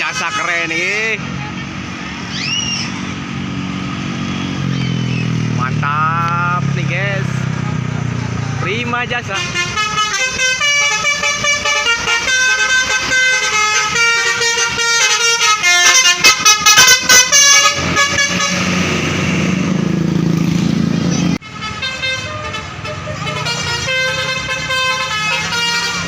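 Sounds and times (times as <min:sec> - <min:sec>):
multi-tone bus horn melody: 0:00.0 - 0:01.8, 0:09.2 - 0:19.7, 0:21.3 - 0:26.0
bus engine drone and road noise: 0:00.0 - 0:26.0.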